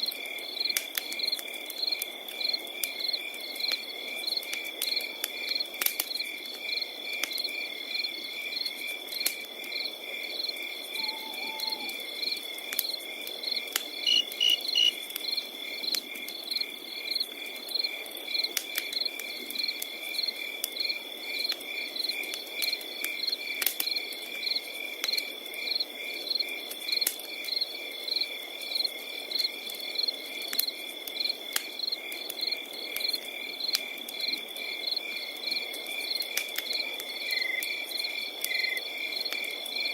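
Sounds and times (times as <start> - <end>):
wood fire crackling: 0.0 - 39.9
fire sharp pops: 4.4 - 6.3, 12.7 - 15.3, 36.2 - 38.6
crickets chirping: 9.6 - 18.4, 25.6 - 39.9.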